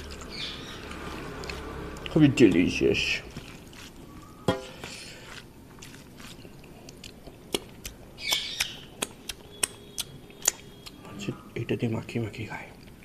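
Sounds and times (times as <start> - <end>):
person chewing food: 0.0 - 2.7, 3.3 - 11.1
wet lip smacks and tongue clicks: 6.8 - 11.0.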